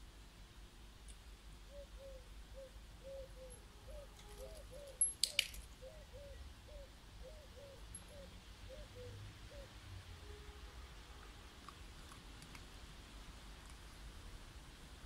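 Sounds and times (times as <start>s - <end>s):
bird cooing: 1.6s - 9.8s.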